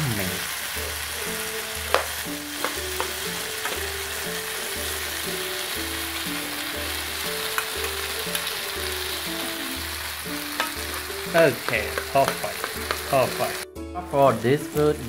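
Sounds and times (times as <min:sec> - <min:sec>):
food sizzling in oil: 0:00.0 - 0:15.0
metal spoon clicking against pan: 0:10.6 - 0:10.8.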